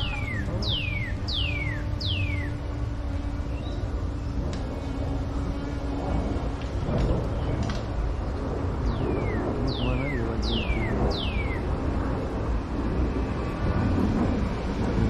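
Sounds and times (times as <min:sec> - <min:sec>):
cardinal whistling song: 0:00.0 - 0:04.0, 0:08.9 - 0:11.7
steady low rumble: 0:00.0 - 0:15.0.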